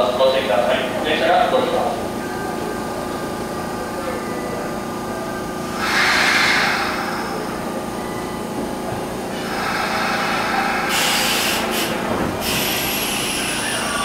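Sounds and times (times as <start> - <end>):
train equipment humming: 0.0 - 14.0
air hiss: 5.8 - 7.2, 9.4 - 14.0.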